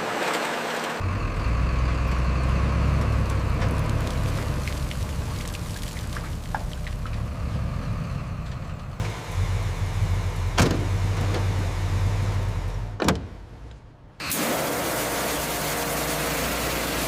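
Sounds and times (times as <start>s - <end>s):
vehicle motor humming: 0.9s - 14.3s.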